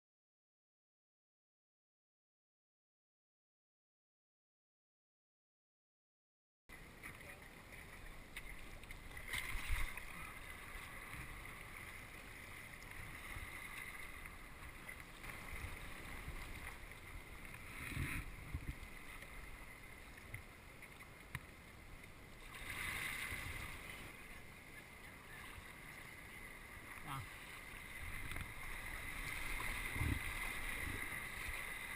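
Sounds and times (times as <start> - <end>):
kayak paddle and hull splashing: 6.7 - 31.9.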